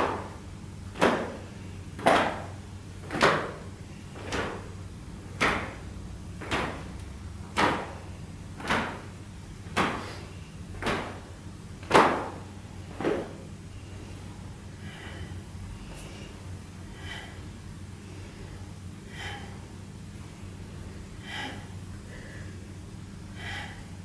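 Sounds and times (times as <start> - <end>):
sharp thuds or slaps: 0.0 - 0.4, 1.0 - 1.4, 2.0 - 4.7, 5.3 - 5.8, 6.4 - 8.0, 8.6 - 10.2, 10.8 - 13.4.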